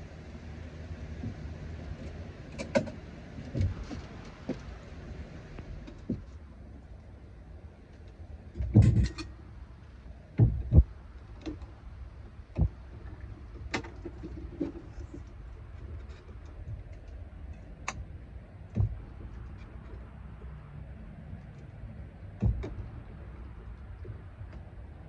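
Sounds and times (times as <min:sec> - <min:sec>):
faint steady background noise: 0:00.0 - 0:25.0.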